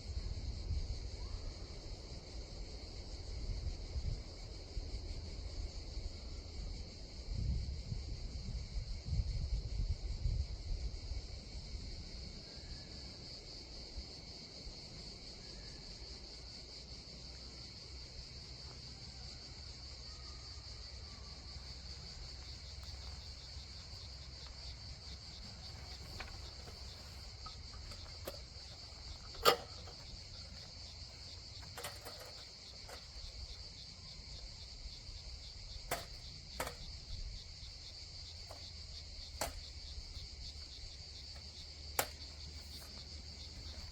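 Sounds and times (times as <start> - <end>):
insect chorus trilling: 0.0 - 43.9
sharp clicks or knocks: 25.8 - 33.3, 35.9 - 36.9, 39.4 - 39.7, 41.4 - 43.0.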